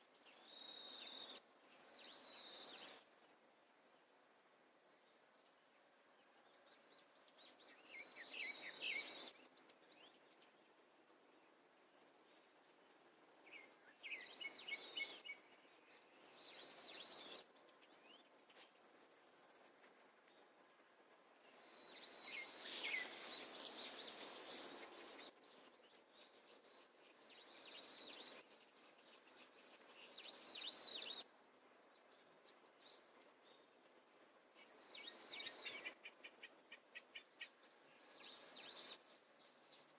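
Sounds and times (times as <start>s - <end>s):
birds chirping and trilling: 6.2s - 10.8s, 12.2s - 31.2s, 31.8s - 39.9s.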